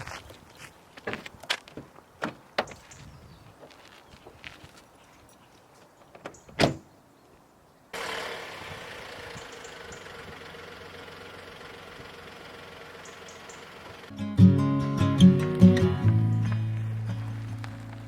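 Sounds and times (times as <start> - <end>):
car door slamming: 6.2 - 6.8
car engine running: 8.0 - 14.1.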